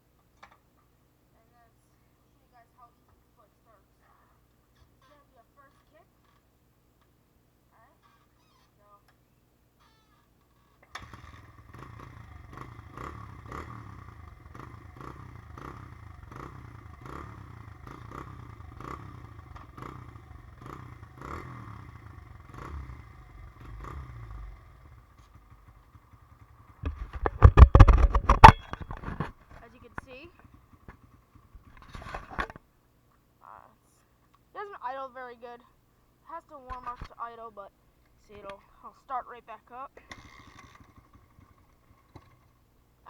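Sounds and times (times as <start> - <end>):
motorcycle engine idling unevenly: 11.0 - 32.6, 40.0 - 43.0
loud clattering: 26.7 - 29.5.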